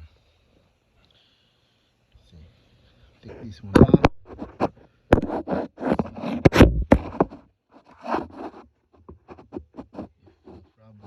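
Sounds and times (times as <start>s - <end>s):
hands clicking knocking and scraping: 3.7s - 10.8s.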